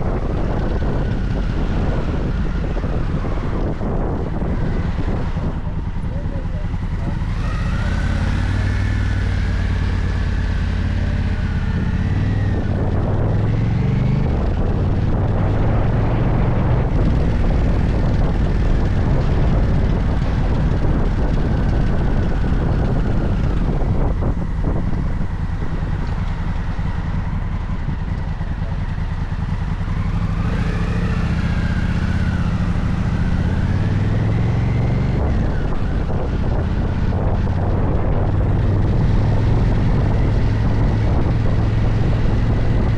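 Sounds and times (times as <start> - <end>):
motorcycle engine revving: 0.0 - 42.9
rumbling wind noise: 0.0 - 42.9.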